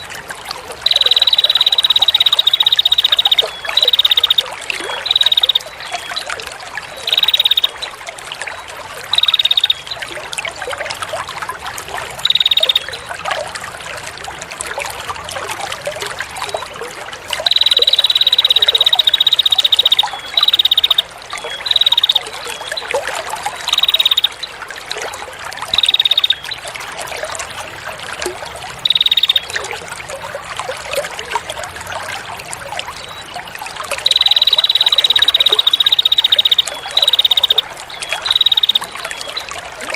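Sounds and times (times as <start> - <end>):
water trickling: 0.0 - 39.9
songbird trilled calls: 0.8 - 6.3, 6.9 - 7.9, 9.1 - 10.1, 12.2 - 13.1, 17.4 - 22.9, 23.5 - 24.4, 25.7 - 26.6, 28.8 - 29.6, 34.0 - 39.4.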